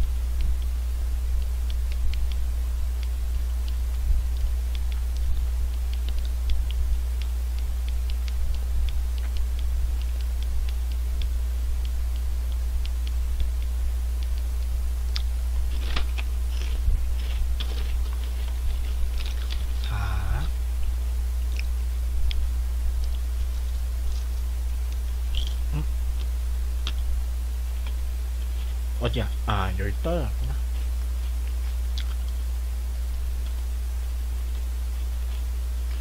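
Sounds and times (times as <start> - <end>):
low electrical hum: 0.0 - 36.0
potato chip crunching: 15.1 - 20.5.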